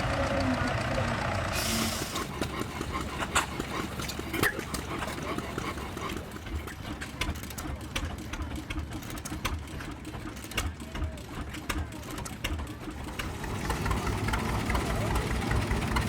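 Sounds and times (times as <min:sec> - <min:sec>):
machinery low pulsing: 0:00.0 - 0:08.8.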